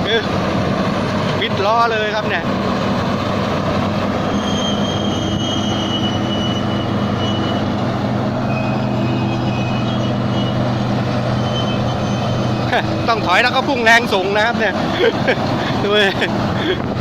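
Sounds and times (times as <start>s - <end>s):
combine harvester engine under load: 0.0s - 17.0s
high-pitched squeals: 4.0s - 14.7s.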